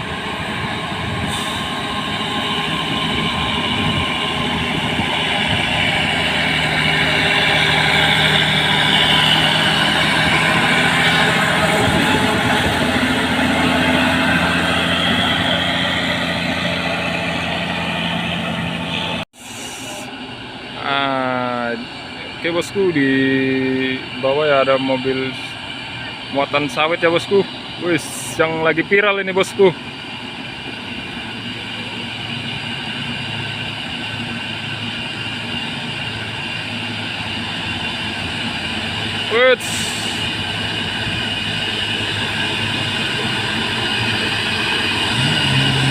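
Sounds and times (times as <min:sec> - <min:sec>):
truck diesel engine running: 0:00.0 - 0:45.9.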